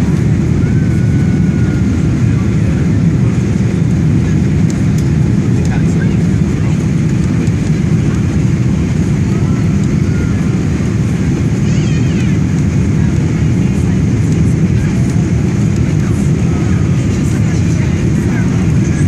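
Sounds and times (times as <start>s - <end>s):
airplane cabin engine noise: 0.0s - 19.0s.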